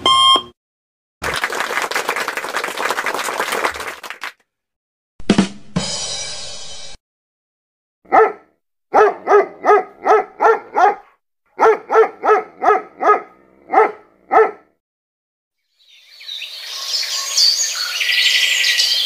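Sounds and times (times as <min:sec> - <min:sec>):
dog barking: 0:08.1 - 0:14.8
birdsong chirps and trills: 0:15.7 - 0:19.0.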